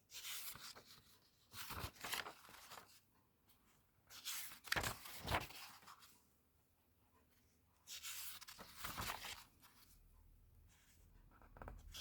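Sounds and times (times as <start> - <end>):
paper pages rustling: 0.1 - 6.2, 7.8 - 10.0, 10.7 - 12.0.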